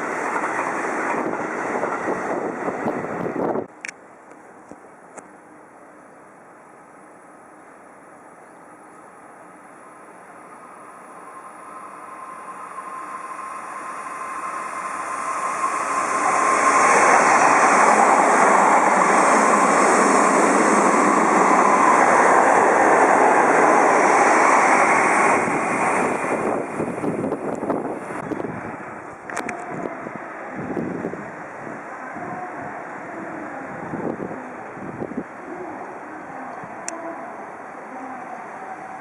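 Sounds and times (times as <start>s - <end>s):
electric train passing: 0.0s - 39.0s.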